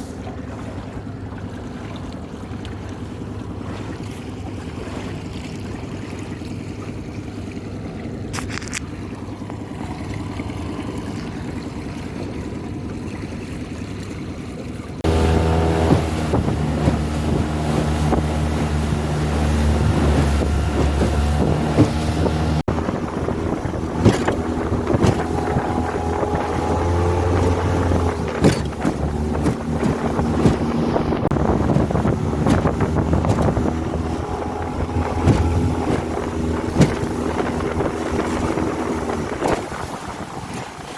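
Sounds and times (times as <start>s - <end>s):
outboard engine running: 0.0s - 40.9s
wind on microphone: 15.0s - 40.9s
hull knocking over chop: 15.3s - 39.9s.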